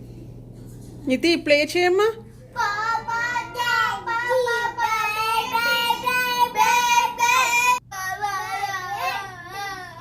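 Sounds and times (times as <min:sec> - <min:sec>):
young child singing: 0:02.6 - 0:10.0.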